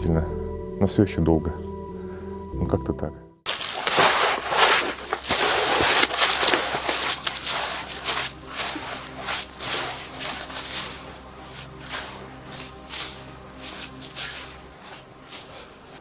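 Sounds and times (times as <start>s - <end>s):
footsteps crunching through snow: 3.5s - 16.0s.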